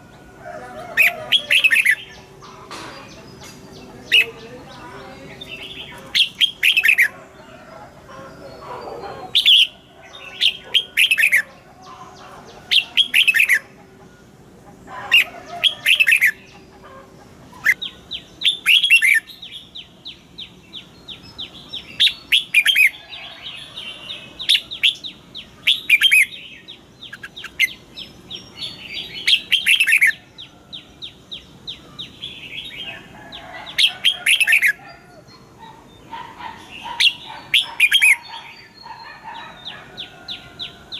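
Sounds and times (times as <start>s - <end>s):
bird chattering: 0.5s - 40.9s
bird singing whistled notes: 24.5s - 30.5s.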